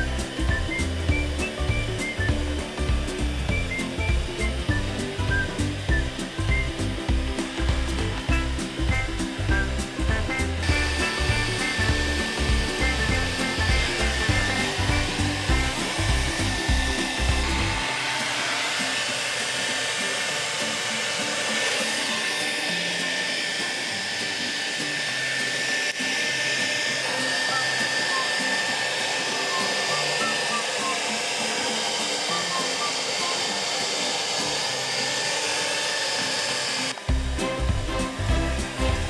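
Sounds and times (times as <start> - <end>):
background music with bass beat: 0.0 - 17.9, 37.1 - 39.0
hair dryer blowing: 0.0 - 39.0.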